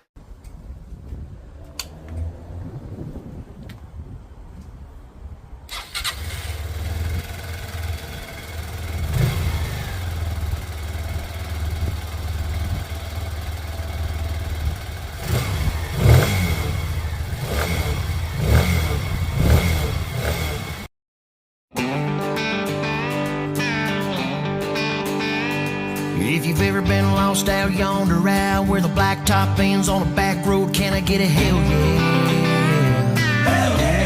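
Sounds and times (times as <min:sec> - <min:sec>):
motorcycle engine idling and revving: 0:01.1 - 0:03.7, 0:05.7 - 0:20.9.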